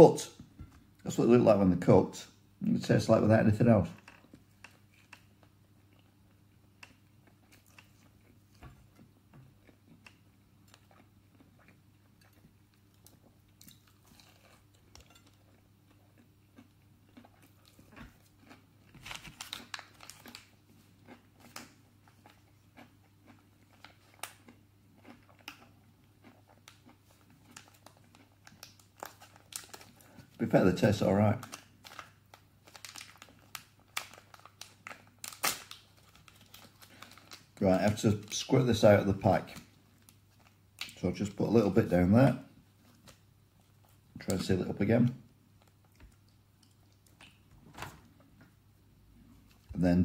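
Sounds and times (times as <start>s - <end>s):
chewing and crunching: 3.9s - 30.4s, 31.4s - 38.4s, 45.5s - 47.5s.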